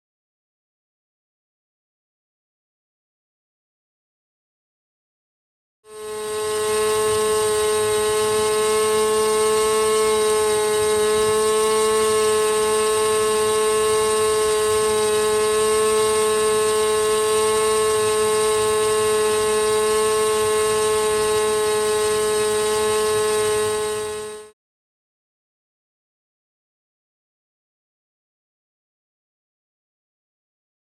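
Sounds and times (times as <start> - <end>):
model engine high-pitched buzz: 5.9 - 24.6.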